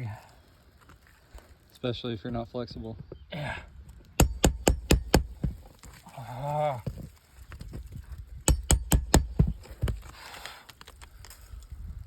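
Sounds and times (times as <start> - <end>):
hammer striking nail claw: 4.2 - 5.6, 8.5 - 10.0.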